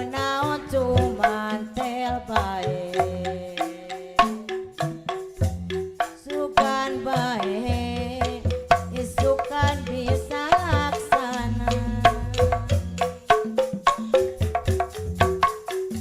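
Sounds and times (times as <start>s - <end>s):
steady drum beats: 0.0s - 16.0s
bass line: 11.4s - 13.3s.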